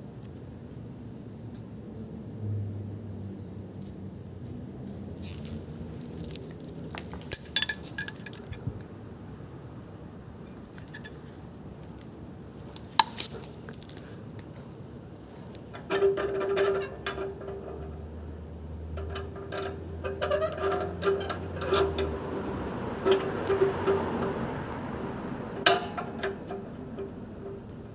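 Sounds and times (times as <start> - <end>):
light metallic clinks: 7.0 - 8.8, 10.5 - 11.3.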